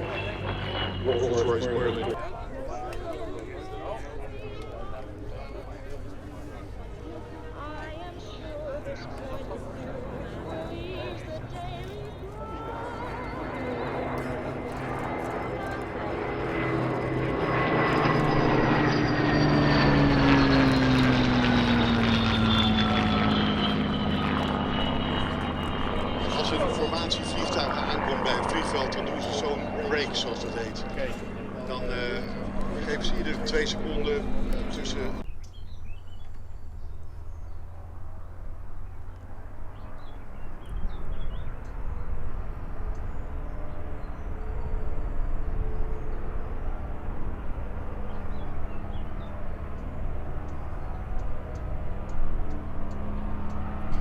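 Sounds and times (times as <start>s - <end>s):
propeller plane engine passing overhead: 0.0s - 54.0s
small birds chirping: 33.7s - 46.8s.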